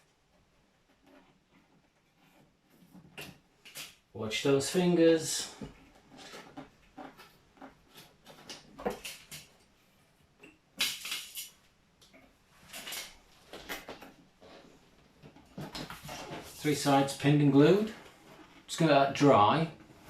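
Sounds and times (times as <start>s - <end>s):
clicks taps and rustles of handling: 5.4s - 16.5s.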